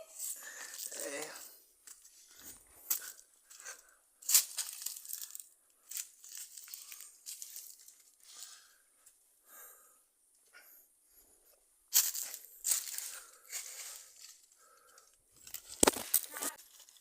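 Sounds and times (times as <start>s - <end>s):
footsteps crunching dry leaves: 4.2s - 8.0s, 11.9s - 14.2s.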